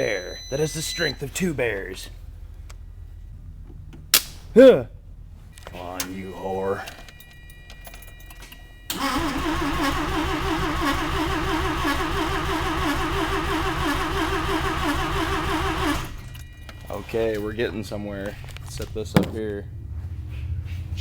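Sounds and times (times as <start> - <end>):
starter motor cranking engine: 8.9 - 19.2.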